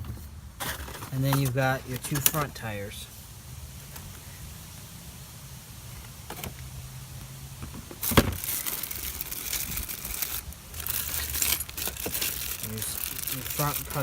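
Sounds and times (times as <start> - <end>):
plastic packaging rustling: 0.6 - 2.9, 7.9 - 14.0.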